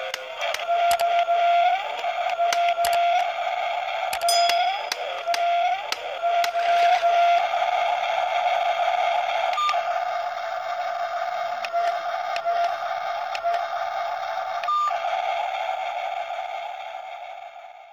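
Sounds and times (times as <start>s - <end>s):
small electric motors whining: 0.0s - 7.6s, 10.8s - 15.1s.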